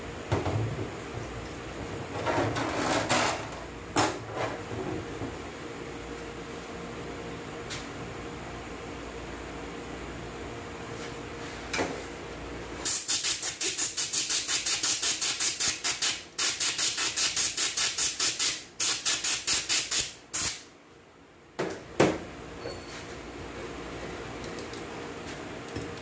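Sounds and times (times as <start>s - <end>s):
short hissing spurts of air: 12.8s - 20.6s.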